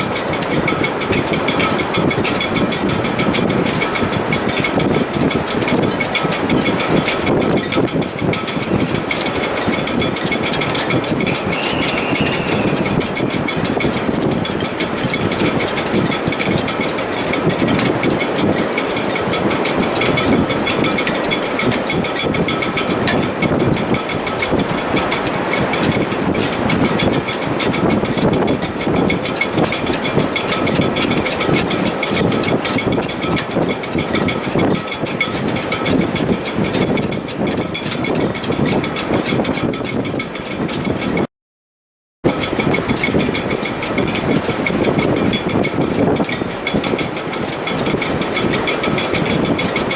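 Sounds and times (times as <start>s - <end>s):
wind whistling in rigging: 0.0s - 41.3s, 42.2s - 49.9s
gale wind rushing: 7.2s - 15.7s.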